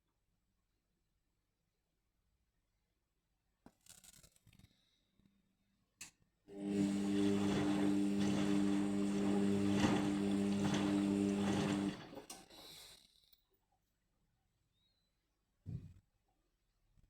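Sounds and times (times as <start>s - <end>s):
washing machine hum: 6.5s - 12.6s.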